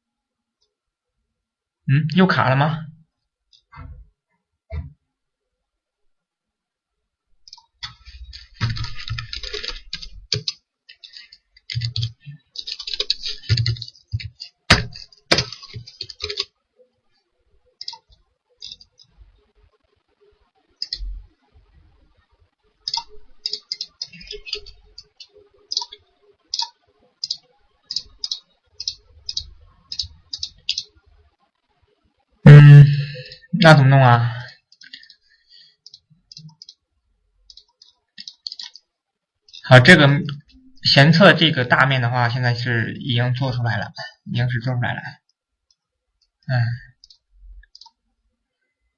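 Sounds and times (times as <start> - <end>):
keyboard keystrokes: 7.5 - 16.5
mouse clicks: 17.8 - 19.1, 20.8 - 21.1, 22.8 - 30.9, 35.8 - 36.8, 37.5 - 38.9, 47.0 - 48.0.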